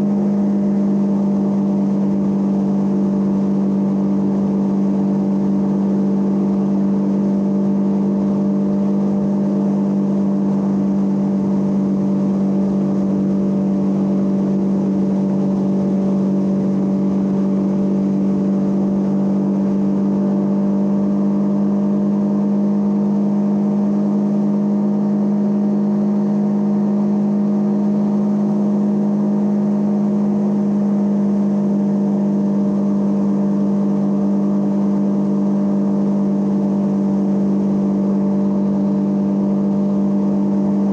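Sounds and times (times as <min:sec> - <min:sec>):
motorcycle engine running steadily: 0:00.0 - 0:40.9.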